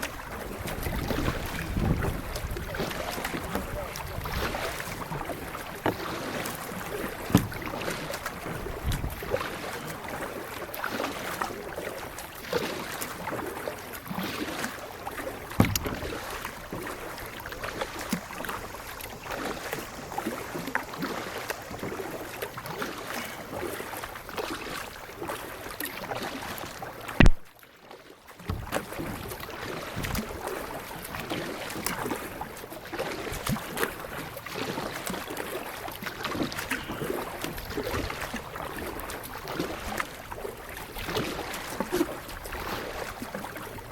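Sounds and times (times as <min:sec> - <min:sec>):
paddle splashing water: 0:00.0 - 0:43.9
sharp click: 0:27.2 - 0:27.5.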